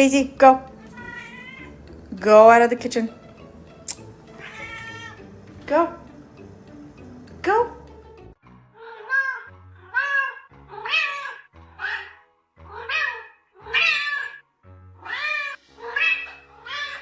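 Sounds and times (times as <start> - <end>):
cat meowing: 0.7 - 1.8, 4.3 - 5.3, 8.7 - 14.4, 15.0 - 17.0.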